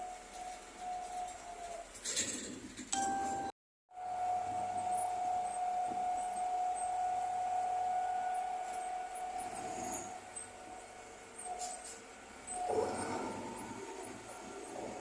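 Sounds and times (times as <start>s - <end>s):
bulldozer engine with high whine: 4.0s - 15.0s.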